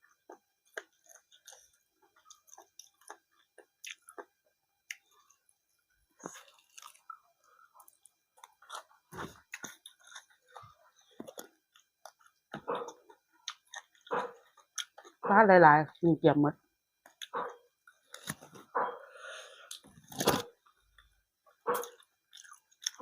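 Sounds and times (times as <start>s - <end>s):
person chewing food: 0.0s - 15.2s, 17.0s - 23.0s.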